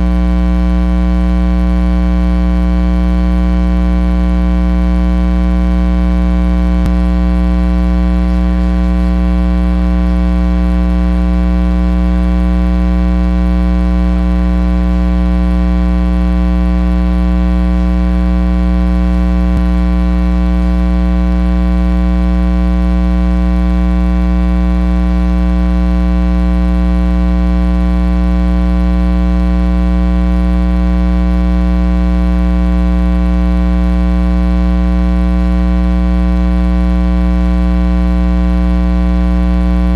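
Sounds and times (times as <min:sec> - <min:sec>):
electrical mains hum: 0:06.8 - 0:12.3, 0:15.6 - 0:22.2.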